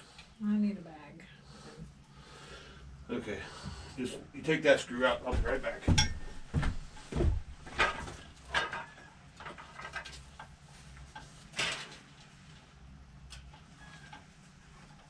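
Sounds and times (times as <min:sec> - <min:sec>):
hand tools knocking and clinking: 0:05.3 - 0:06.7.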